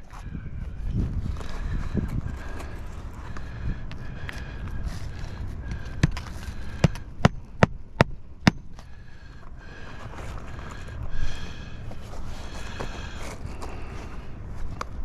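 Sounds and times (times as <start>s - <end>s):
hammer striking roofing nail: 6.8s - 8.7s.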